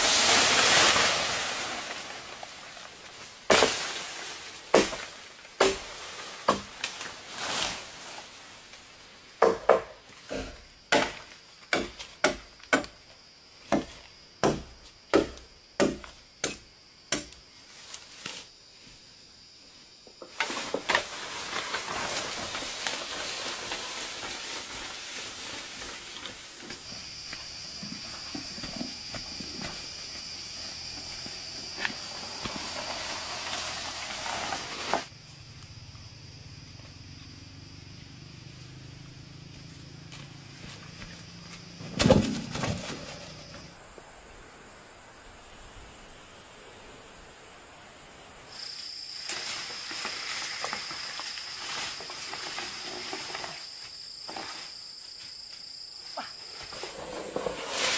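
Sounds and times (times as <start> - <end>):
steady hiss: 0.0 - 9.4, 17.5 - 28.6, 29.3 - 35.8, 43.2 - 56.0
wood being chopped: 3.5 - 4.0, 4.7 - 5.9, 9.4 - 13.0, 13.7 - 17.4, 41.9 - 43.0.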